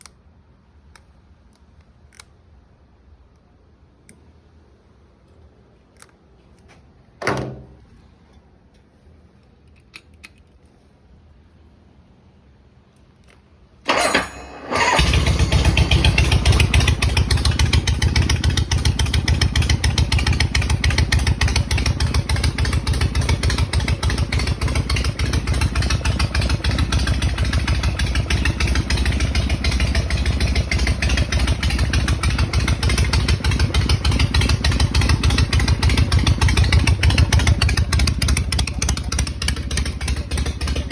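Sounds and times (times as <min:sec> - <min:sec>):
motorcycle engine cranking: 0:13.9 - 0:40.9
motorcycle engine idling: 0:13.9 - 0:40.9.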